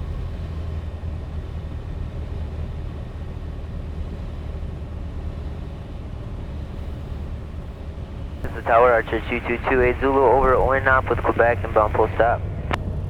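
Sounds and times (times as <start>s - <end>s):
propeller plane engine drone: 0.0s - 13.0s
airflow noise: 8.5s - 12.8s.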